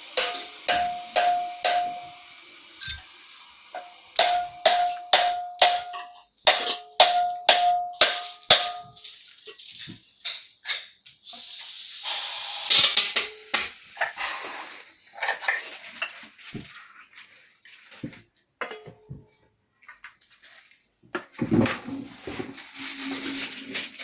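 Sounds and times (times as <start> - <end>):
metal tool striking metal part: 0.1 - 2.2, 3.8 - 9.0.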